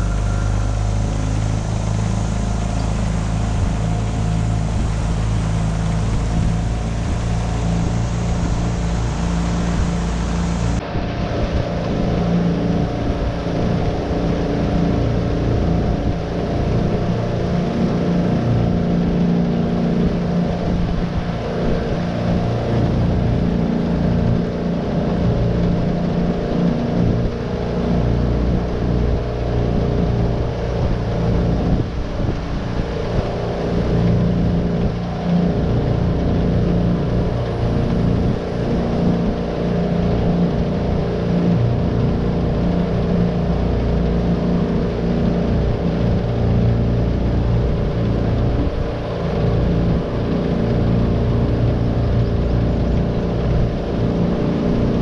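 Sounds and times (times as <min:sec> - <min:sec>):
outboard motor running: 0:00.0 - 0:55.0.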